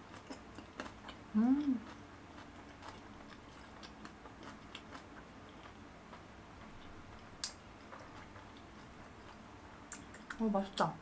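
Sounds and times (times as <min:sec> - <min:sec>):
faint close-up chewing: 0:00.0 - 0:10.4
wet mouth clicks: 0:09.9 - 0:10.4.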